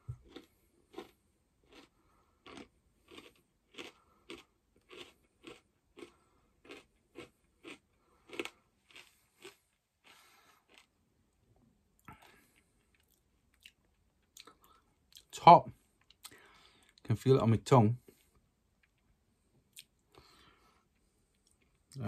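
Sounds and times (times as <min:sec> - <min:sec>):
crisp crunching chewing: 0:00.1 - 0:11.0.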